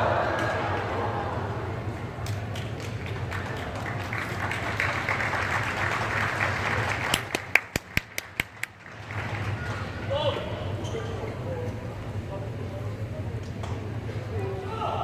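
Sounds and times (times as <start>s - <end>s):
crowd applause: 0.0s - 10.0s
sharp rhythmic claps: 2.2s - 9.9s.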